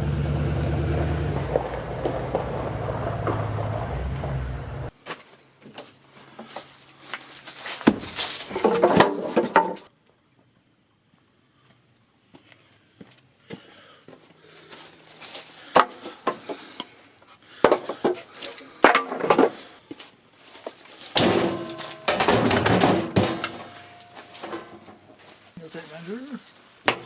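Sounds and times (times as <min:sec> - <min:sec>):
objects rattling: 0:21.0 - 0:25.6
hard objects knocking: 0:21.2 - 0:25.2.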